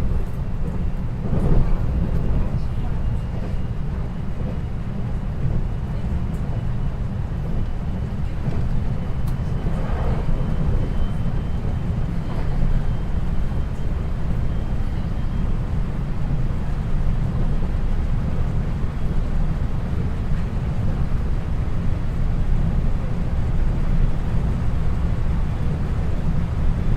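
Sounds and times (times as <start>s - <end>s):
train wheels rumbling on rail: 0.0s - 26.9s.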